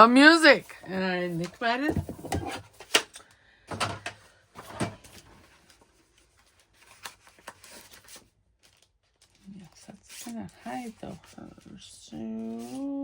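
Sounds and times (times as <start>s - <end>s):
paper rustling: 4.6s - 13.0s.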